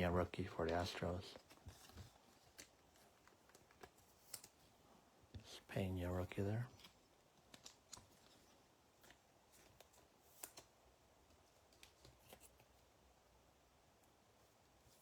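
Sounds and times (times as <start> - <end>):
trading cards flipped through: 0.7 - 4.7, 6.8 - 8.4, 9.0 - 10.7.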